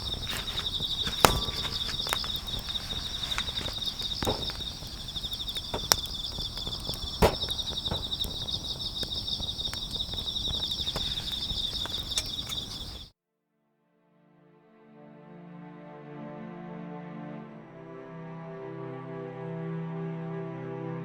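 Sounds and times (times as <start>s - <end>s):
campfire popping: 0.0s - 13.1s
crickets chirping: 0.0s - 13.1s.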